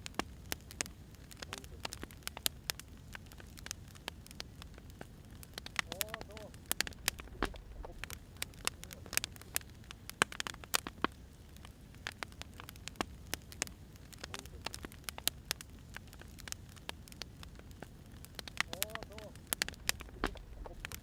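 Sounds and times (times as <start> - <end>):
firewood crackling: 0.0 - 21.0
low steady rumble: 6.6 - 9.7, 18.7 - 21.0.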